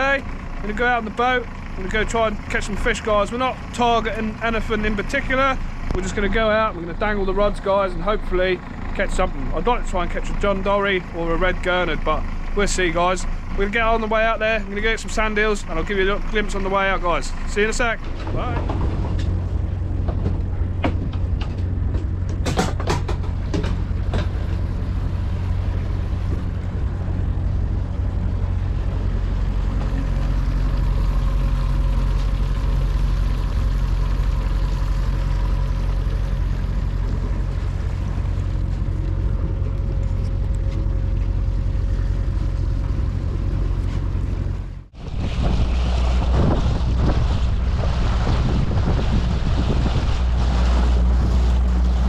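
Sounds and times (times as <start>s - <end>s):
engine running with low hum: 0.0s - 52.0s
wind noise: 44.9s - 52.0s.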